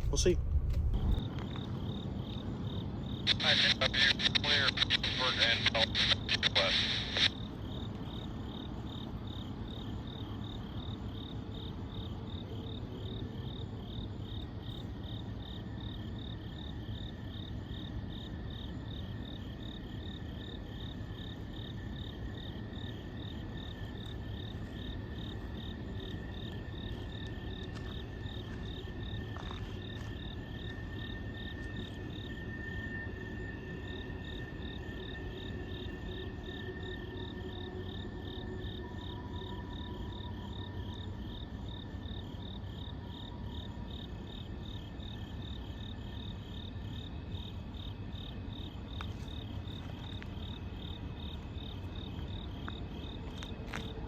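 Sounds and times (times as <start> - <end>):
low background rumble: 0.0 - 15.8
faint high drone: 0.0 - 17.2, 18.8 - 54.0
night insects chirping: 0.0 - 54.0.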